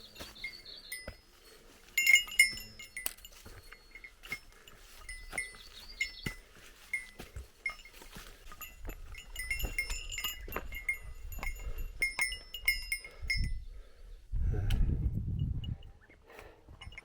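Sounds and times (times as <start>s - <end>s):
footsteps: 0.0s - 13.0s
small metal bell jingling: 0.0s - 13.7s.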